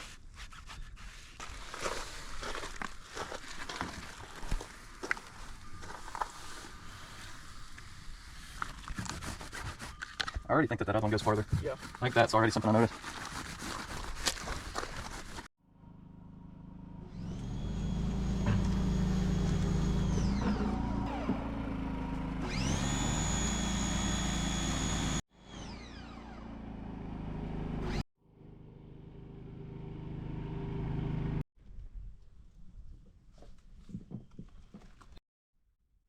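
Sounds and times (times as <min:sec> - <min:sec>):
machine humming: 0:15.8 - 0:28.0
high machine whine: 0:22.4 - 0:27.0.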